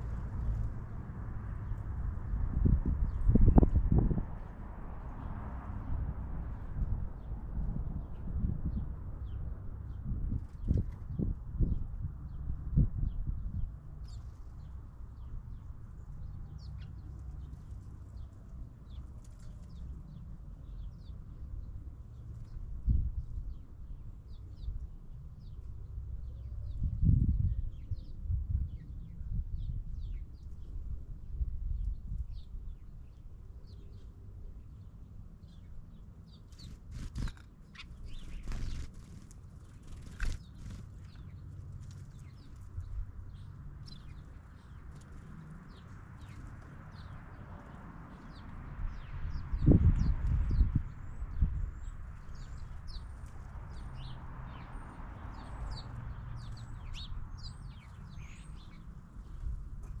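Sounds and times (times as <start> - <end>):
low steady rumble: 0.0 - 36.4
birds chirping: 32.3 - 60.0.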